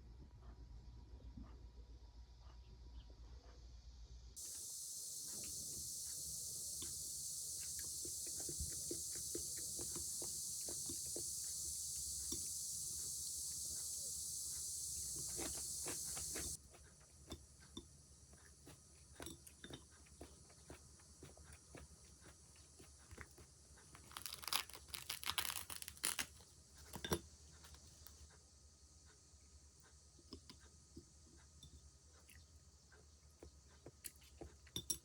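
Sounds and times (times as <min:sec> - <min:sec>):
cicadas buzzing: 0:04.4 - 0:16.6, 0:23.7 - 0:26.3.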